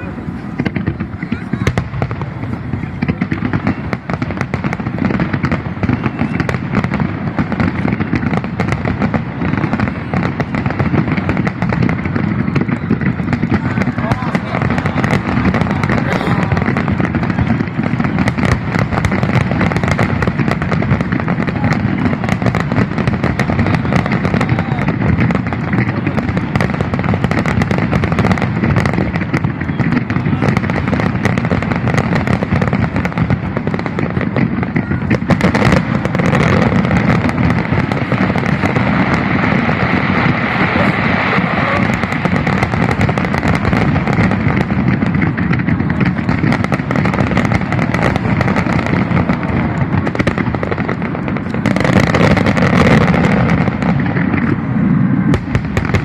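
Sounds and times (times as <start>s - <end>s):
crowd voices: 0.0s - 56.0s
fireworks bangs and crackles: 0.0s - 56.0s.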